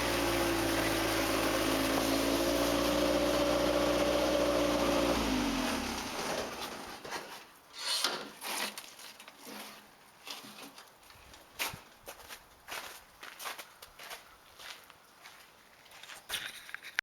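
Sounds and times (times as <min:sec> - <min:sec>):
tractor engine winding down: 0:00.0 - 0:07.1
crunching scraping noises: 0:00.0 - 0:17.0.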